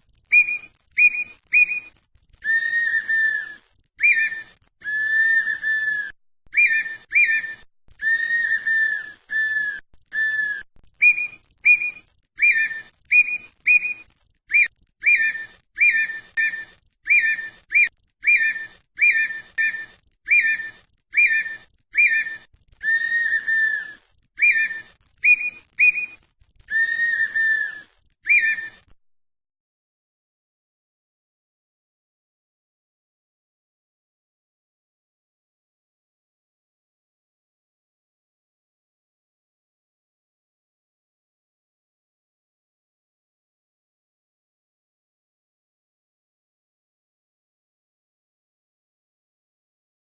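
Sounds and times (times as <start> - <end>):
bird whistling: 0.3 - 28.9.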